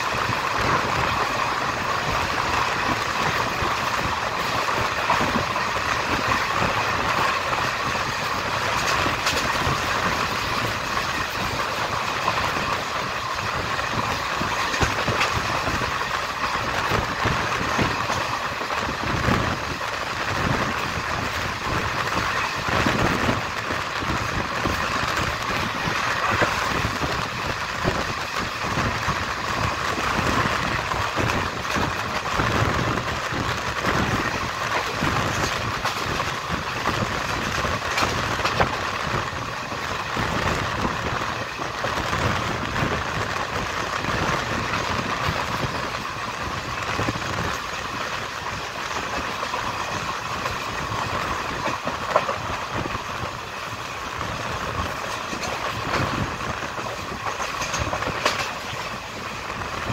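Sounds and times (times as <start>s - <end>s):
train running on track: 0.0s - 59.9s
sharp clicks of wheels: 54.2s - 59.9s.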